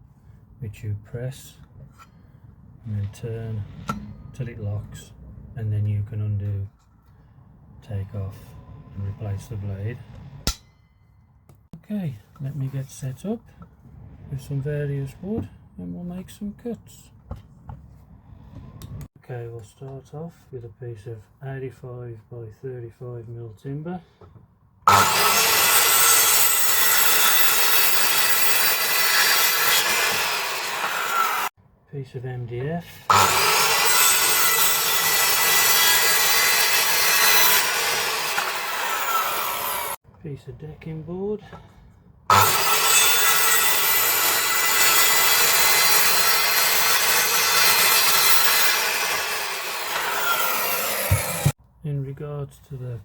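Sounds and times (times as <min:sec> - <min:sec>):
circular saw cutting timber: 0:02.8 - 0:05.1, 0:07.9 - 0:10.9, 0:24.9 - 0:31.5, 0:32.5 - 0:40.0, 0:42.3 - 0:51.6
circular saw motor whine: 0:24.9 - 0:31.5.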